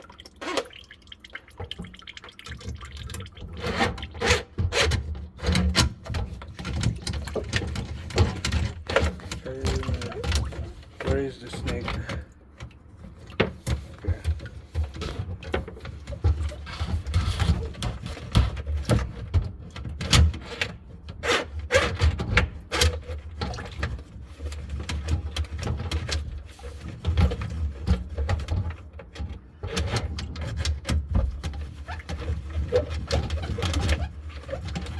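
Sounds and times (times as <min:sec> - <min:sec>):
drain snake knocking and scraping: 0:02.7 - 0:20.1
low steady hum: 0:06.2 - 0:16.2.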